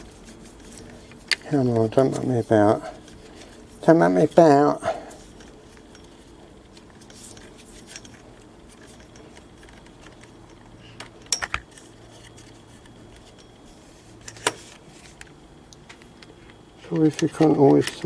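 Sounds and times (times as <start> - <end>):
metal tools clinking: 0.5 - 10.6.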